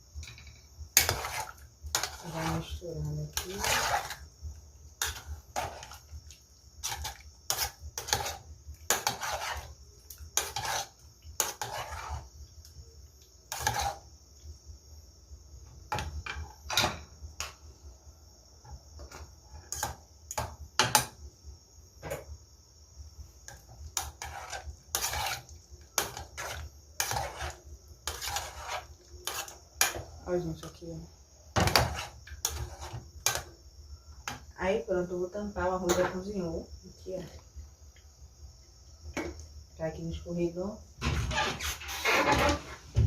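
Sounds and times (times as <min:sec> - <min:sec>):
spoon scraping a cooking pot: 0:00.2 - 0:04.3, 0:05.0 - 0:06.1, 0:06.8 - 0:12.3, 0:13.5 - 0:14.1, 0:23.5 - 0:30.7, 0:31.6 - 0:33.4.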